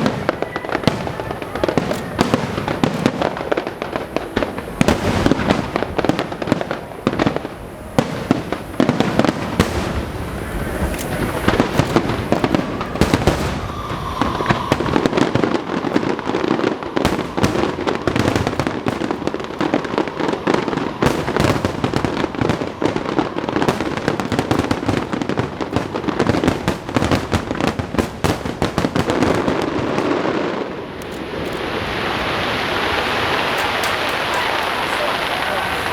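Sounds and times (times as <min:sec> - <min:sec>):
fireworks bangs and crackles: 0:00.0 - 0:35.9
steady even noise: 0:10.0 - 0:15.8.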